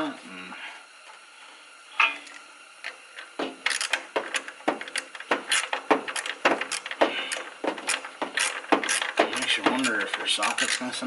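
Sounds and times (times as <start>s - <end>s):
ratchet clicking: 2.3s - 10.9s.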